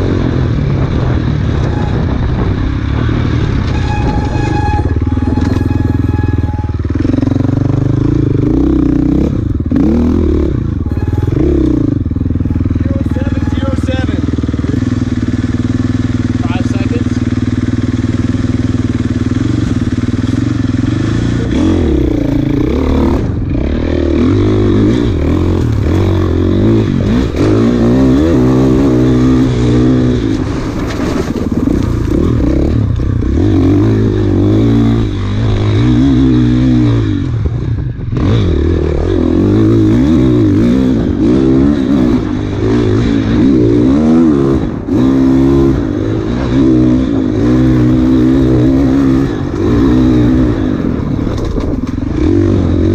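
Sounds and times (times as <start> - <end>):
motorcycle engine revving: 0.0 - 52.9
motorcycle clatter: 0.8 - 34.4, 45.8 - 52.9.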